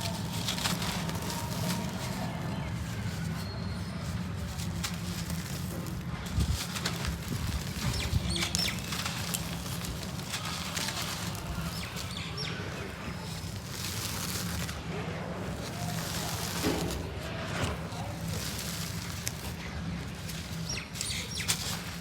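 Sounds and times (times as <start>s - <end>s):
cement crumbling and sifting: 0.0s - 22.0s.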